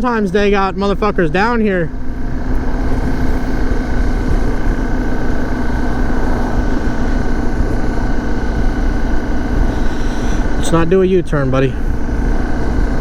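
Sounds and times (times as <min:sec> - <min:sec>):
dirt bike engine running: 0:00.0 - 0:13.0
wind on microphone: 0:02.0 - 0:10.7.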